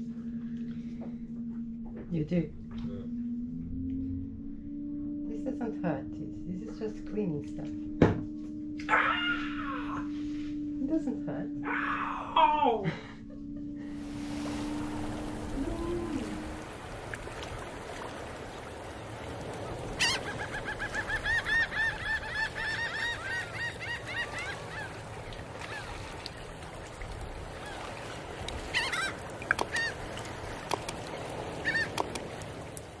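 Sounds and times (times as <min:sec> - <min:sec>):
bird calling rapidly: 0:20.0 - 0:25.0, 0:28.7 - 0:30.1, 0:31.6 - 0:32.2.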